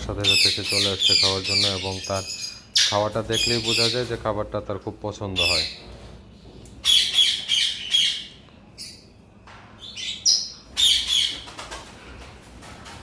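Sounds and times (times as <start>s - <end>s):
parrots squawking: 0.2s - 4.1s, 5.4s - 5.8s, 6.8s - 9.0s, 9.8s - 11.6s.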